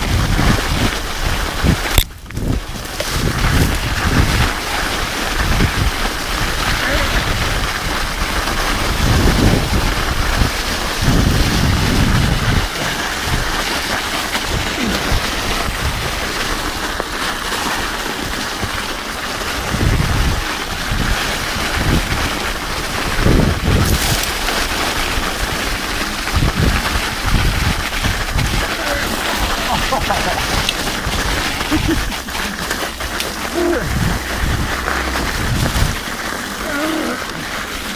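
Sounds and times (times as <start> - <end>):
wind on microphone: 0.0 - 16.5, 19.6 - 37.9
bike tyre noise on ice: 0.0 - 37.9
heavy low thumps from bumps: 32.8 - 36.1.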